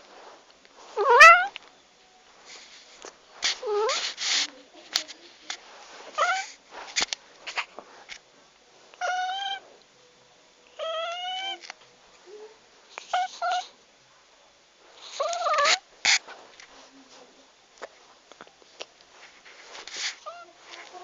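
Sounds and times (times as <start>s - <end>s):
cat meowing: 1.0s - 1.6s, 3.6s - 4.0s, 6.2s - 6.5s, 9.0s - 9.6s, 10.8s - 11.7s, 15.2s - 15.8s.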